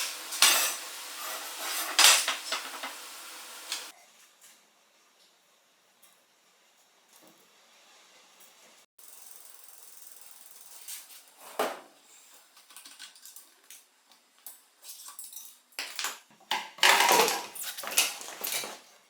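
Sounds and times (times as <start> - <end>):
light steady hiss: 0.0 - 8.8.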